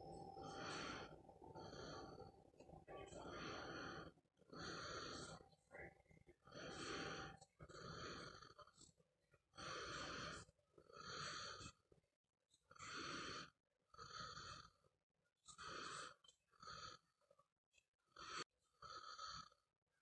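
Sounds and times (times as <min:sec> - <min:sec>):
person snoring: 0:00.0 - 0:05.4, 0:06.5 - 0:08.7.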